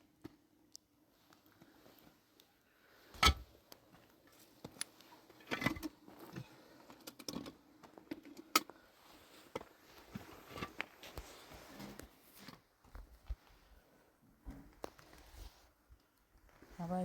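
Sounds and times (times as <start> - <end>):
objects being handled: 3.2 - 13.7.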